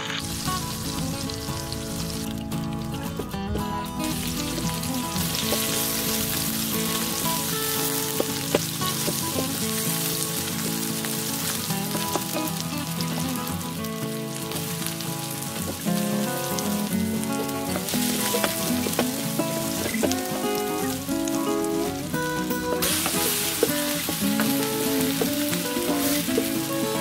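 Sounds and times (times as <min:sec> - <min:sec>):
onion sizzling in hot oil: 0:00.0 - 0:27.0
wooden spatula stirring and tapping: 0:04.1 - 0:09.7, 0:17.2 - 0:27.0
soft background music: 0:15.3 - 0:27.0.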